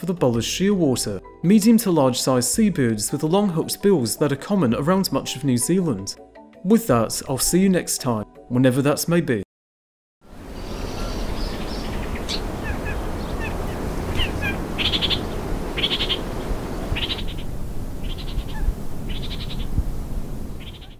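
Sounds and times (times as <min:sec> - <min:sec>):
bird chirps: 0:10.5 - 0:19.8, 0:20.6 - 0:20.9
rapid chattering bird call: 0:10.7 - 0:19.7, 0:20.6 - 0:20.9.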